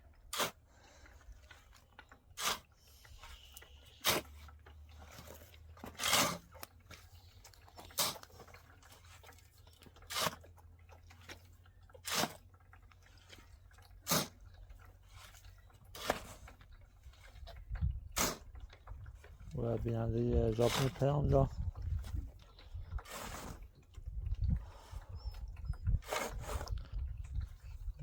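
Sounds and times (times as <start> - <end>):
short crunching strokes: 0.2 - 9.3, 15.1 - 17.4, 22.9 - 23.8, 26.0 - 26.9.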